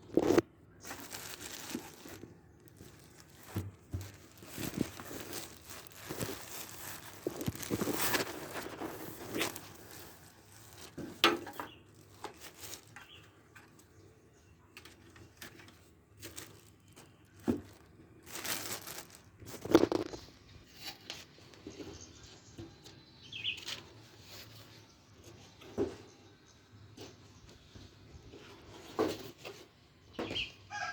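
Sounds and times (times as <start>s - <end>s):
packaging rustling and crinkling: 0.0s - 14.0s, 14.8s - 21.9s.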